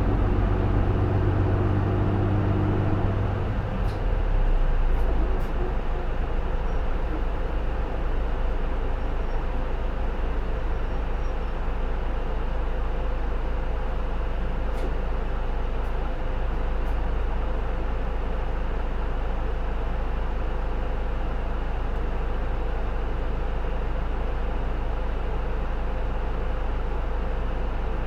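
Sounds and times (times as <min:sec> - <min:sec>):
low road rumble: 0:00.0 - 0:08.8
bus diesel engine whine: 0:00.0 - 0:15.6.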